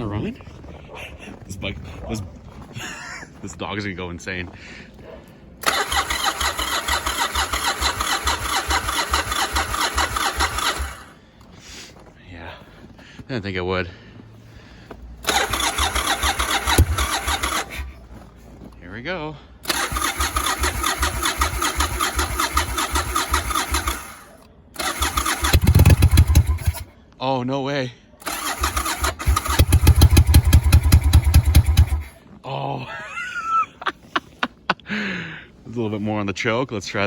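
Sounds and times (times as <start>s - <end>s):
engine firing with low thuds: 5.6s - 11.2s, 14.7s - 18.7s, 19.6s - 26.9s, 28.2s - 32.2s
motorcycle starter cranking: 5.6s - 11.2s, 15.2s - 18.2s, 19.6s - 26.9s, 28.2s - 32.2s.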